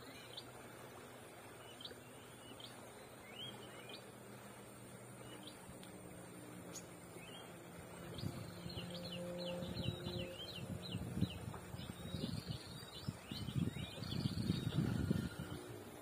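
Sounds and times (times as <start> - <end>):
small birds chirping: 1.5 - 4.1, 6.6 - 15.6.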